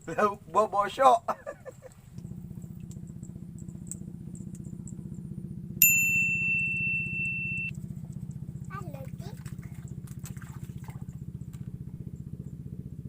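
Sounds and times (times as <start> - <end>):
small engine running: 0.0 - 13.0
high-pitched ding: 5.8 - 7.7.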